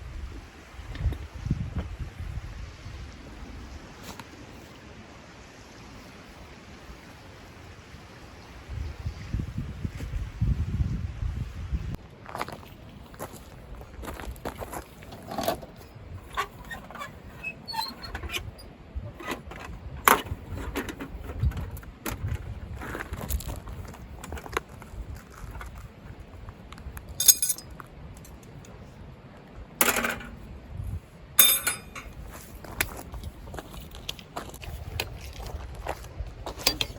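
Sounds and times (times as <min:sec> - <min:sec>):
objects clicking and clinking: 0:27.2 - 0:28.4, 0:31.4 - 0:32.1.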